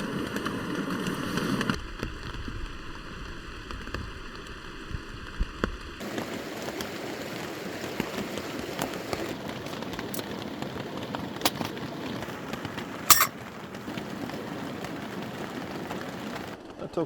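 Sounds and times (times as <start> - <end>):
rain falling on a tent: 0.0 - 17.0
raindrops tapping: 3.7 - 16.6.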